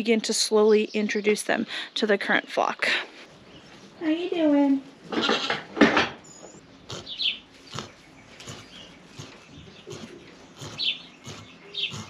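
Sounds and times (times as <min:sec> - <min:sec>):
small bird chirping: 0:06.2 - 0:12.0.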